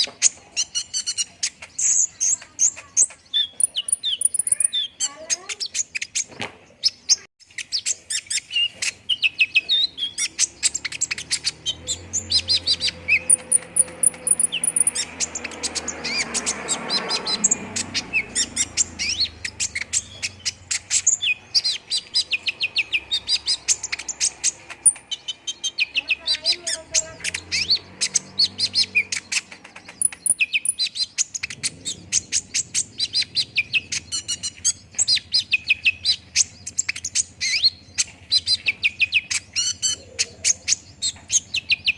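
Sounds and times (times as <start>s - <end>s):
sunbird chirping: 0.0s - 41.9s.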